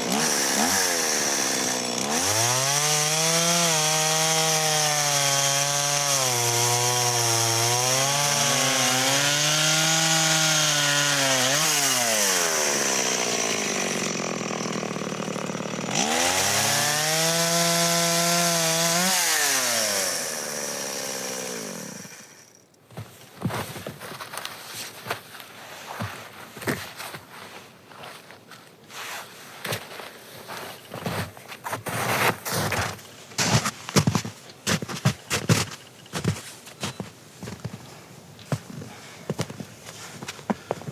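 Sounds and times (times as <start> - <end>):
chainsaw cutting wood: 0.0 - 22.7, 32.0 - 37.8
footsteps: 22.9 - 40.9.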